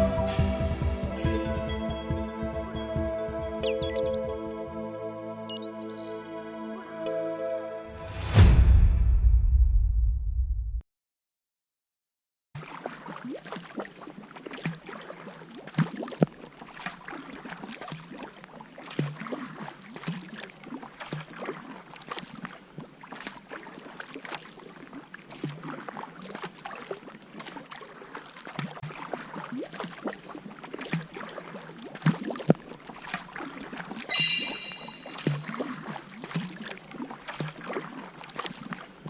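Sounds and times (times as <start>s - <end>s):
paddle blades splashing: 12.6s - 39.0s
water lapping at hull: 12.6s - 39.0s.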